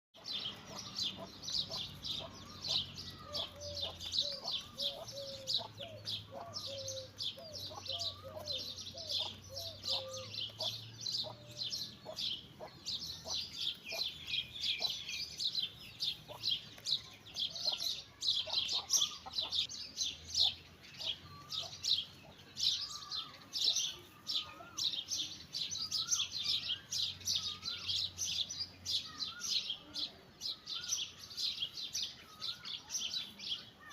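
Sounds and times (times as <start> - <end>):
chicken calls: 0.2 - 15.1, 17.5 - 19.7.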